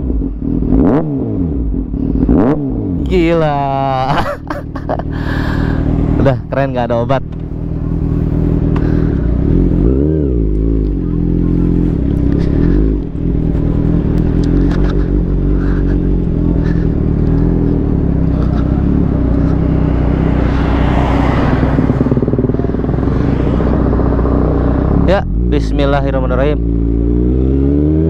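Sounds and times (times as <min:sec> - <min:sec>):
motorcycle engine idling: 0:04.4 - 0:27.1.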